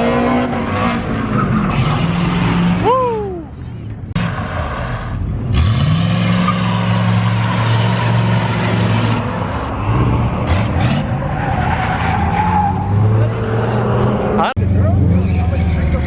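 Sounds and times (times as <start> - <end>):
car engine revving: 4.1 - 16.0.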